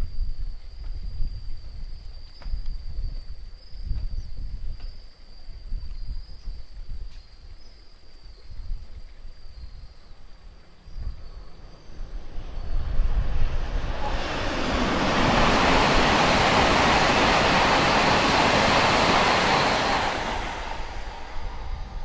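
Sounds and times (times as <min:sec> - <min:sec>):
electric train rushing past: 0:11.1 - 0:22.0.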